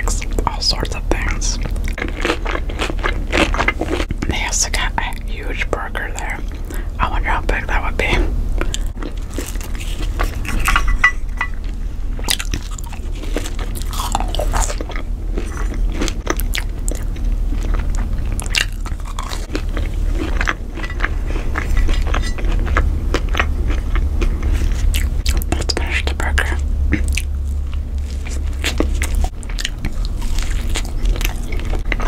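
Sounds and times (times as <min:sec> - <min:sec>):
crunchy chewing of fries: 0:00.0 - 0:32.0
steady low hum: 0:00.0 - 0:32.0.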